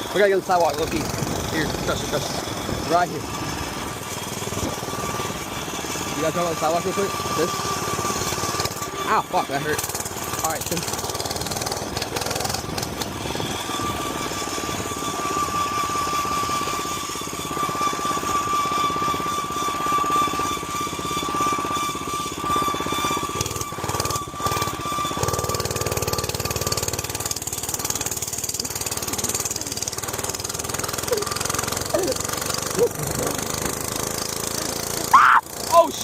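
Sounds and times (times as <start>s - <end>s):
mini bike engine running: 0.0s - 36.0s.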